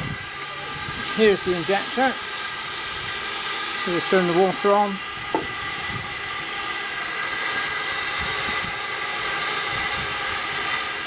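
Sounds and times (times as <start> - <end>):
steam hissing from safety valve: 0.0 - 11.0
faint knocks: 5.3 - 5.6.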